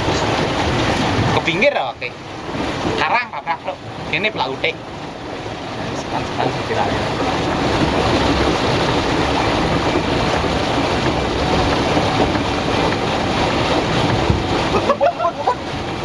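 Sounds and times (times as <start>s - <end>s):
small boat rushing on water: 0.0s - 16.0s.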